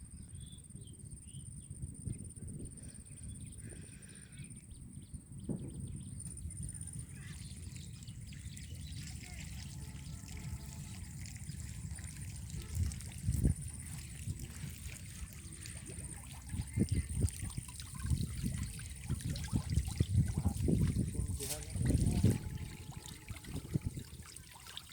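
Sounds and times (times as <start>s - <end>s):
low steady rumble: 0.0s - 24.4s
water trickling and sloshing: 5.5s - 24.9s.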